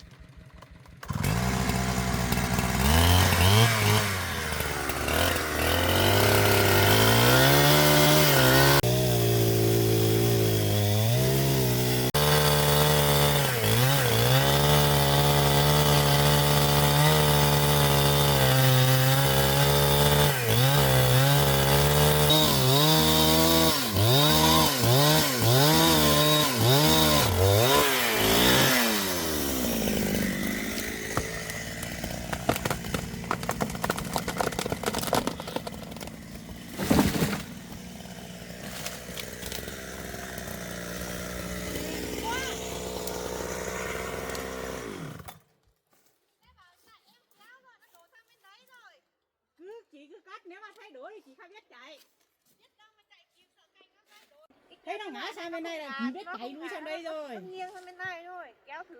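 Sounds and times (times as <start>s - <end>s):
chainsaw cutting log: 0.0s - 45.5s.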